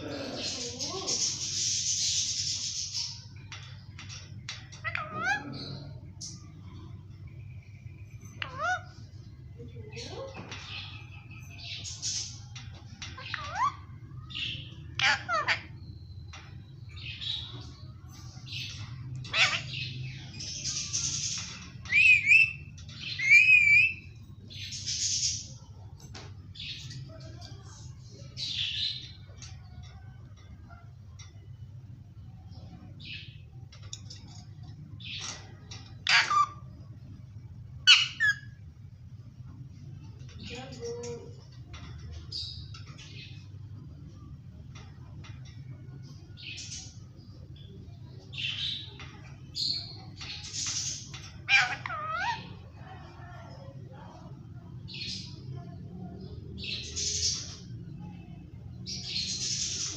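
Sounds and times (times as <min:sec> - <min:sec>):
steady low hum: 0:00.0 - 0:59.9
parakeet calling: 0:04.6 - 0:06.8, 0:08.2 - 0:09.2, 0:13.1 - 0:15.9, 0:18.7 - 0:25.1, 0:35.8 - 0:37.2, 0:37.8 - 0:38.7, 0:49.6 - 0:52.8.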